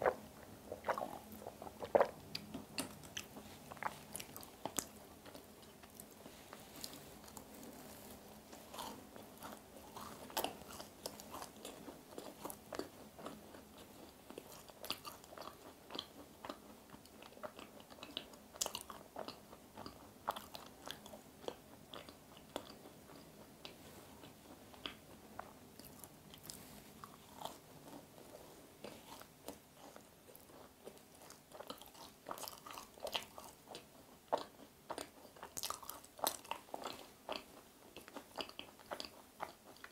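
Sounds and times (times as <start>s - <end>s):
biting and chewing crunches: 28.8s - 39.9s.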